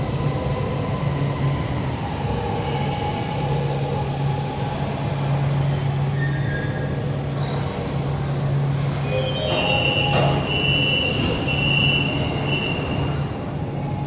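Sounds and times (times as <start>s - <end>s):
metro train pulling in: 0.0s - 14.0s.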